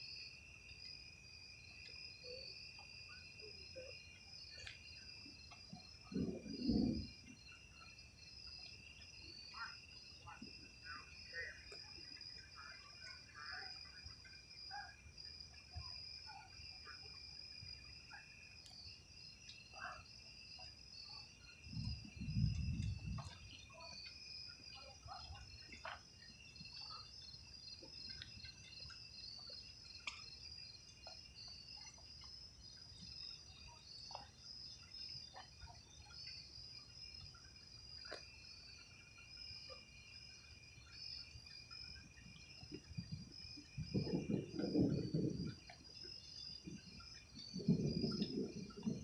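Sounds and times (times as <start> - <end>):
crickets trilling: 0.0 - 49.0
pulsing insect trill: 0.0 - 49.0
short insect chirps: 0.0 - 49.0.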